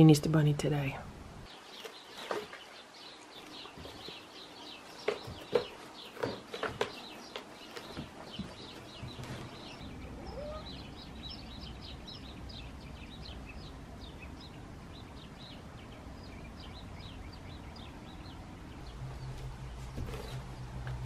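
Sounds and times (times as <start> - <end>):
small birds chirping: 0.0 - 21.0
faint low hum: 6.7 - 21.0.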